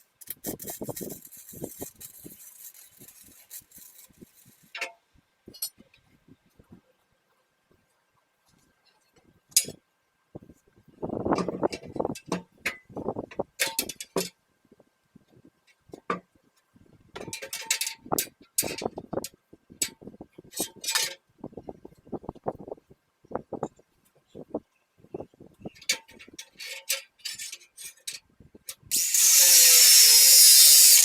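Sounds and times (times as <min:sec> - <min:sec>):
metal parts clinking and scraping: 0:00.2 - 0:04.8, 0:25.8 - 0:28.2, 0:28.9 - 0:31.0.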